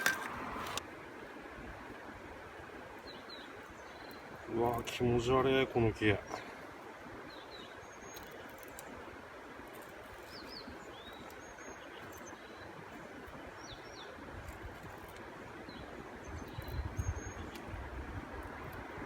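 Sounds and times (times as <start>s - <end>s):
wind gusts on microphone: 15.7s - 19.0s.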